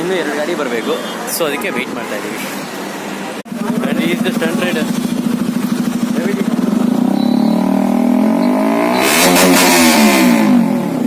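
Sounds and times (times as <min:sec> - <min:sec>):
engine idling: 0:03.5 - 0:08.0
motorcycle passing: 0:03.5 - 0:11.0.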